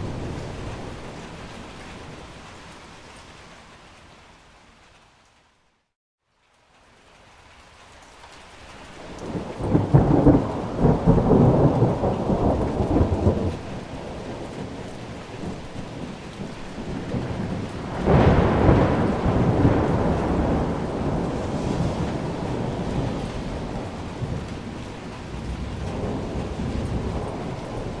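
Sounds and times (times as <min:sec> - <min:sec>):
rain falling: 0:00.0 - 0:28.0
thunder rumbling: 0:09.0 - 0:28.0.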